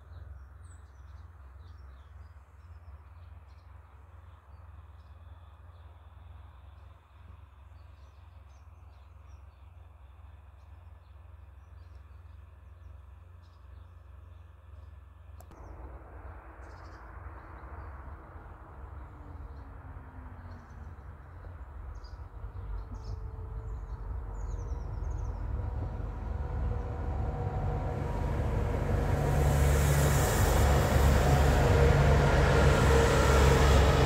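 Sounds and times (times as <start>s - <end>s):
train running noise: 17.9s - 34.0s.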